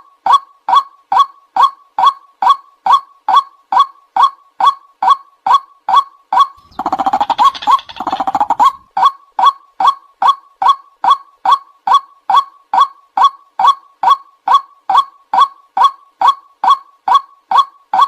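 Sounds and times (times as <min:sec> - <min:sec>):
waterhen calling: 0:06.6 - 0:08.9.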